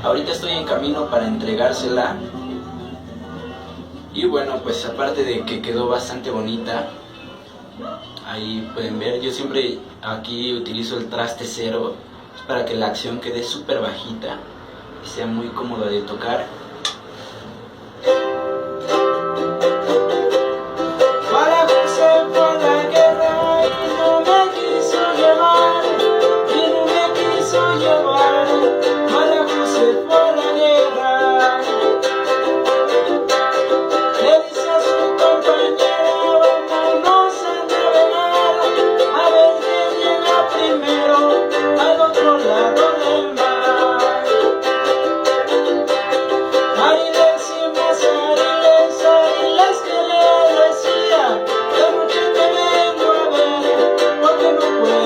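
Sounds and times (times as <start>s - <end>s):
small guitar strummed chords: 17.9s - 55.0s.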